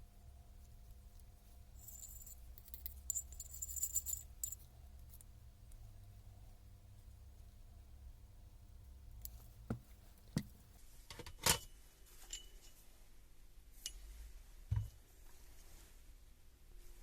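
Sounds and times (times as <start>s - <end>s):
tools knocking and clinking: 9.7s - 10.7s.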